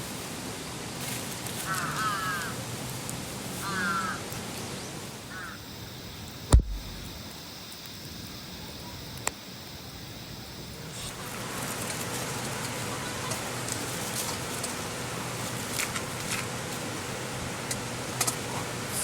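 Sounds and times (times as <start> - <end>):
steady hiss: 0.0 - 19.0
crow cawing: 1.7 - 2.6, 3.6 - 4.2, 5.3 - 5.6
sharp knock with thud: 6.5 - 7.1.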